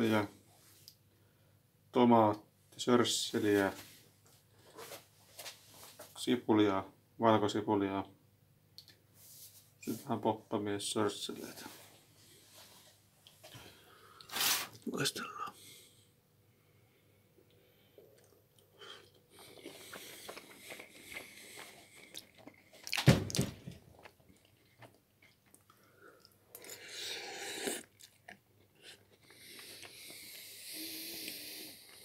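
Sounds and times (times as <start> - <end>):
person chewing food: 17.5 - 23.0, 23.8 - 32.0
loud thump: 23.0 - 23.8.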